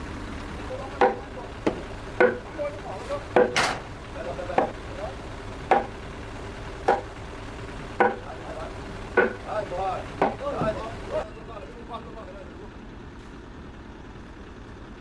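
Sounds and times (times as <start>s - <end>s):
hammer knocking on timber: 1.0s - 2.6s, 3.3s - 3.9s, 4.5s - 4.9s, 5.7s - 6.1s, 6.8s - 7.2s, 7.8s - 11.1s.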